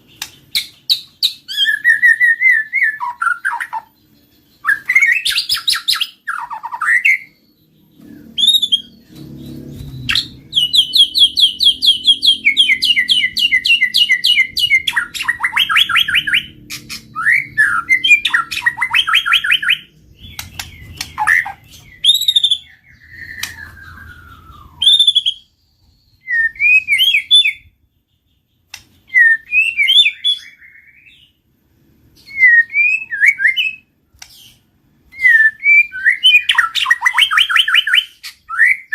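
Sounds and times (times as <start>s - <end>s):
bird singing whistles and trills: 0.0s - 31.4s, 32.2s - 38.9s
faint low rumble: 7.4s - 18.9s, 19.6s - 26.3s.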